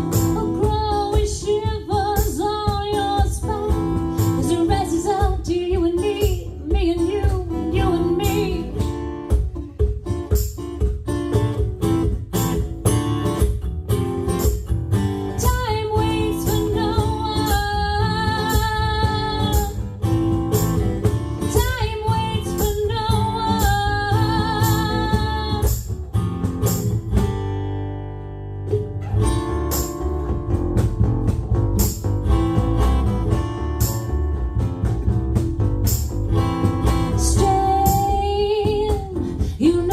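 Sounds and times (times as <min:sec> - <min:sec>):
steady drum beat: 0:00.0 - 0:27.6, 0:28.7 - 0:39.9
guitar: 0:00.0 - 0:39.9
woman singing: 0:00.1 - 0:09.0, 0:15.3 - 0:20.0, 0:21.4 - 0:25.9, 0:37.0 - 0:39.9.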